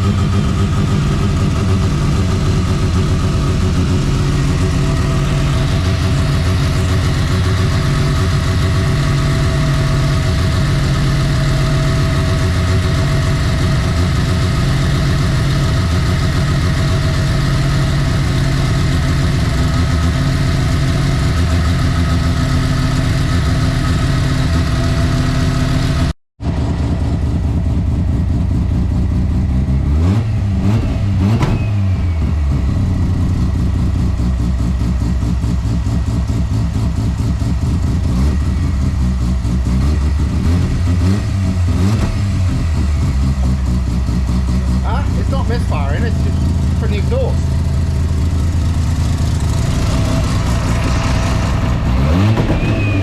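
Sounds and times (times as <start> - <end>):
rotary engine idling: 0.0 - 29.5, 41.7 - 53.0.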